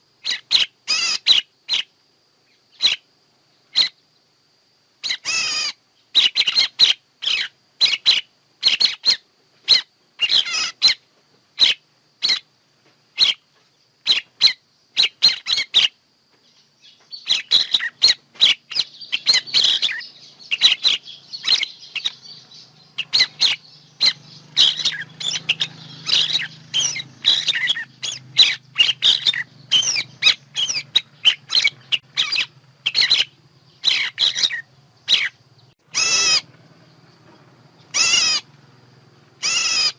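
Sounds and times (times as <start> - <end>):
birds chirping: 0.0 - 4.4, 5.0 - 39.9.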